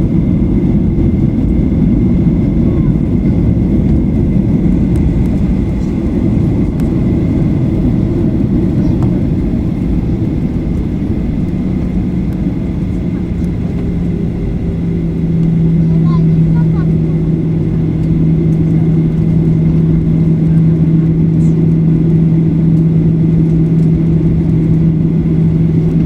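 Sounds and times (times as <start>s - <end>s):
airplane cabin engine rumble: 0.0s - 26.0s
steady hum: 0.0s - 26.0s.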